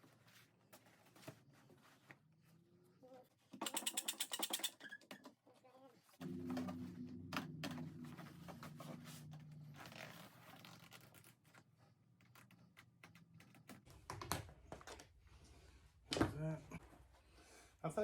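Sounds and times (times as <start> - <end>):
low steady hum: 6.2 - 10.6.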